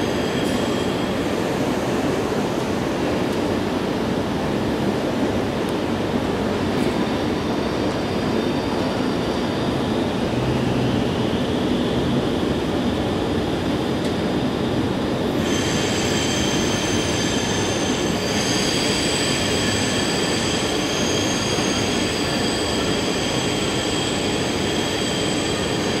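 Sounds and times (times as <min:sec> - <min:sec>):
train wheels rumbling on rails: 0:00.0 - 0:26.0
high metallic brake squeal: 0:15.4 - 0:26.0.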